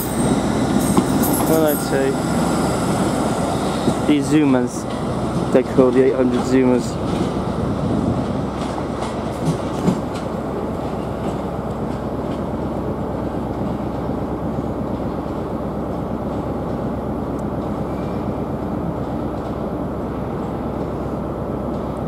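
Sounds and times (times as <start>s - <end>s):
train pulling away rumbling: 0.0s - 22.0s.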